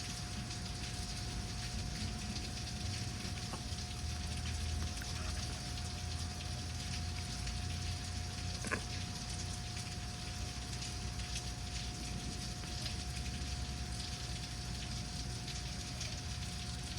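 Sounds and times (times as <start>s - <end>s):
faint steady hum: 0.0s - 16.9s
rain falling: 0.0s - 16.9s
drops ticking on a surface: 2.4s - 11.9s.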